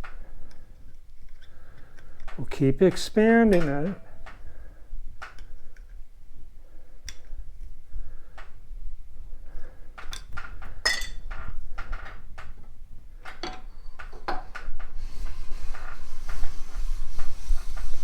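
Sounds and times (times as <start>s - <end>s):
steady lapping hiss: 14.6s - 18.0s.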